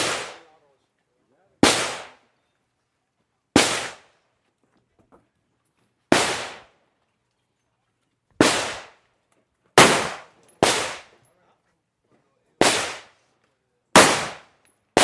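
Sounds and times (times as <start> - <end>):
single gunshots with echo: 0.0 - 0.4, 1.6 - 2.2, 9.8 - 11.1, 12.6 - 13.1, 14.0 - 15.0.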